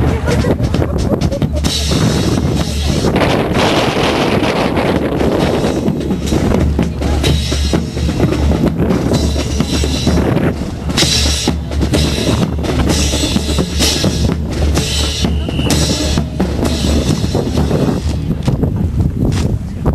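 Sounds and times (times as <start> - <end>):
drum-led band music: 0.0 - 18.8.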